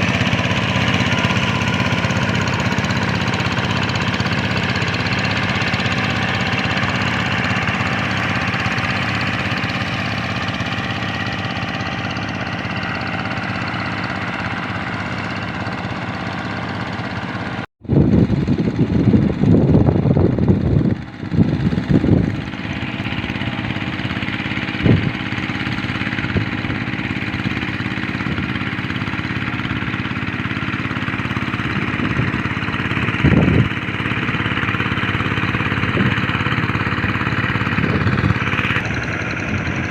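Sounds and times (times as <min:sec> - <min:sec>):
diesel engine running: 0:00.0 - 0:39.9
uneven low rumbling: 0:17.8 - 0:30.3, 0:31.0 - 0:39.9.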